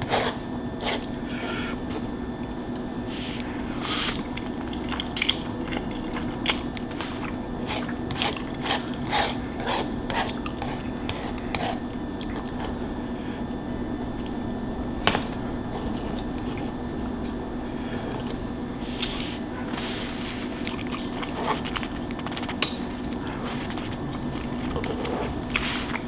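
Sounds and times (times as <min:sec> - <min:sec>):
chewing with wet mouth smacks: 0:00.0 - 0:14.6, 0:15.9 - 0:26.0.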